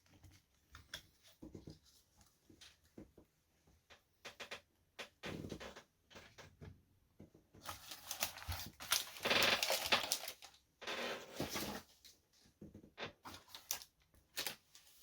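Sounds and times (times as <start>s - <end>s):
foil packaging rustling and crinkling: 7.6s - 12.0s, 13.2s - 15.0s.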